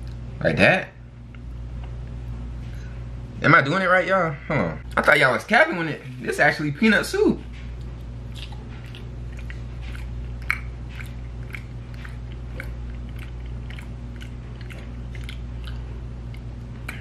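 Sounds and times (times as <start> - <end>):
steady low hum: 0.0 - 17.0
wet mouth smacks chewing: 7.7 - 17.0.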